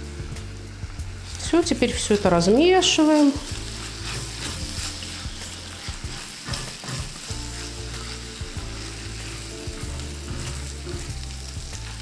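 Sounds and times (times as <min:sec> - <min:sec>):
onions and spices sizzling: 0:00.0 - 0:12.0
spatula scraping a pot: 0:02.1 - 0:11.1.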